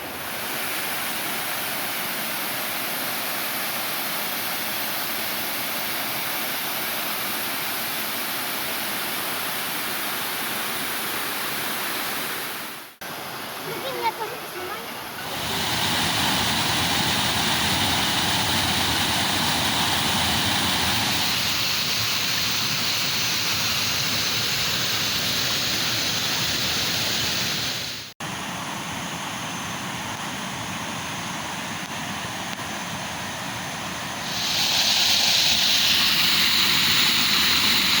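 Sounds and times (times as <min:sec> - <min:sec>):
waterfall rushing: 0:11.7 - 0:28.1, 0:34.0 - 0:38.0.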